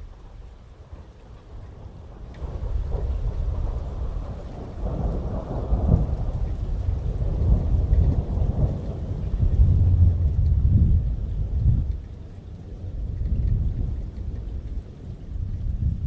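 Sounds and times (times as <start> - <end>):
heavy rain: 0.0 - 16.0
rolling thunder: 0.0 - 16.0.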